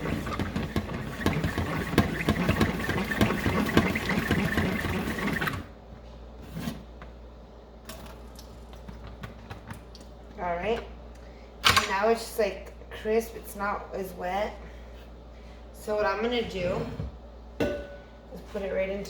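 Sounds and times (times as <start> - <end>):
salad spinner whirring: 0.0 - 5.7.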